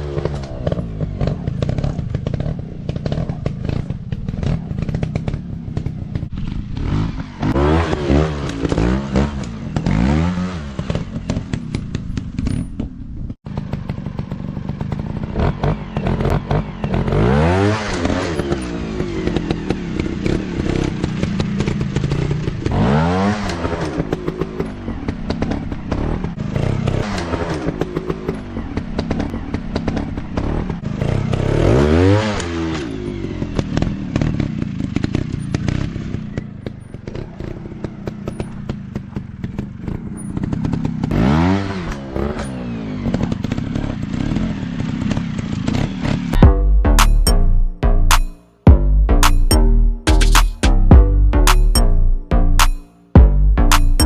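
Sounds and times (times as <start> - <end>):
dirt bike engines revving: 13.5 - 46.4.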